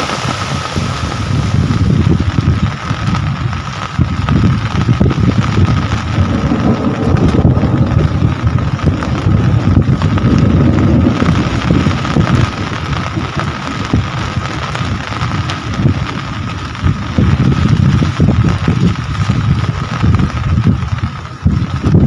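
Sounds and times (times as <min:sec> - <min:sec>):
rain falling: 0:00.0 - 0:22.0
wind buffeting microphone: 0:00.0 - 0:22.0.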